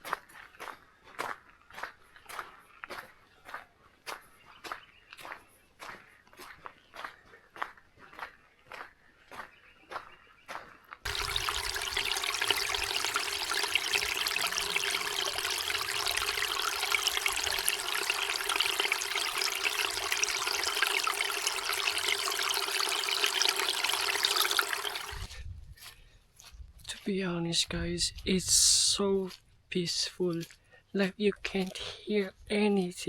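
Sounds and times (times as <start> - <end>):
water pouring: 11.1 - 25.4.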